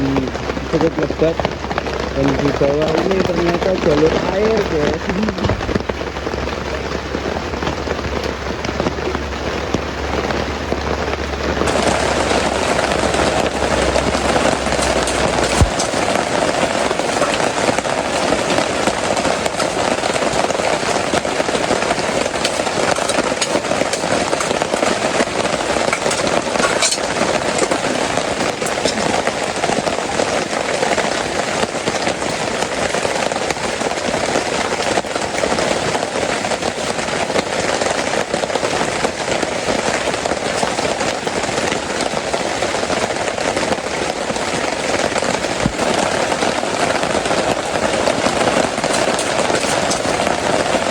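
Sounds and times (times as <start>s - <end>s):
heavy rain on tent awning: 0.0s - 50.9s.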